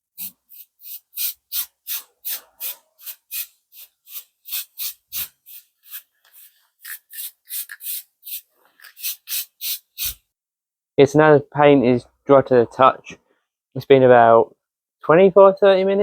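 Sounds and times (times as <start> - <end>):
spray can ball rattling: 0.2 - 10.2.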